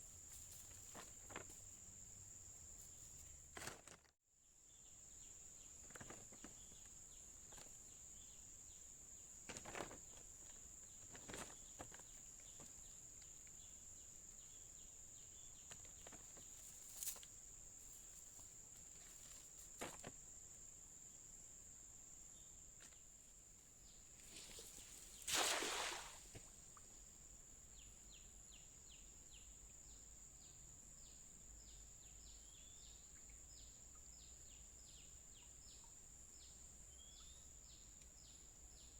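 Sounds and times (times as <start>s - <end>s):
soft rustles: 0.0s - 1.8s, 15.7s - 20.2s.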